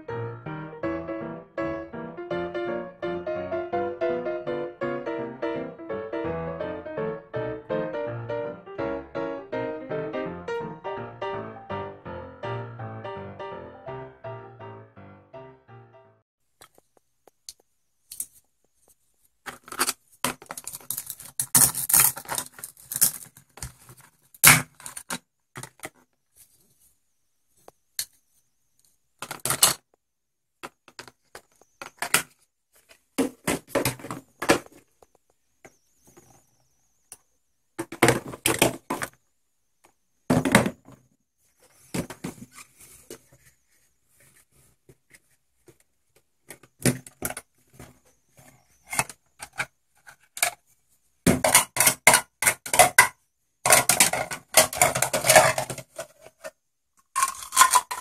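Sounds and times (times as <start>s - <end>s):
plastic toys on hard tabletop: 16.5s - 26.9s, 27.6s - 58.0s.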